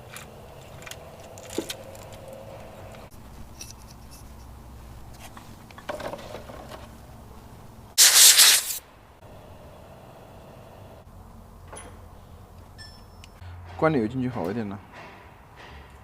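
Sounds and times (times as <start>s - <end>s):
short loud hiss: 8.0s - 8.8s
light metal clinks: 12.7s - 13.4s.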